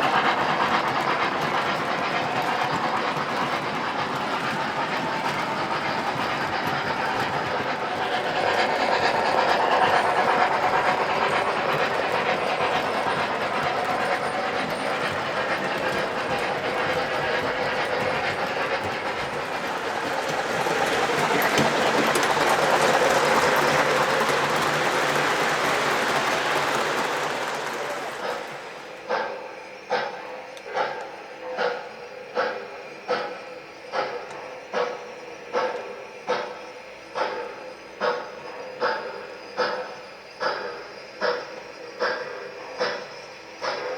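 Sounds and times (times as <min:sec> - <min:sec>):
model train wheels clattering on rail: 0:00.0 - 0:31.8, 0:32.4 - 0:43.9.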